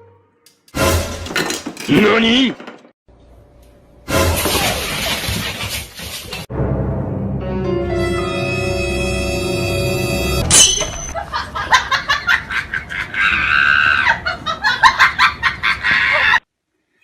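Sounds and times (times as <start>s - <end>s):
dramatic music: 6.5s - 10.5s
person screaming and laughing: 12.9s - 16.4s.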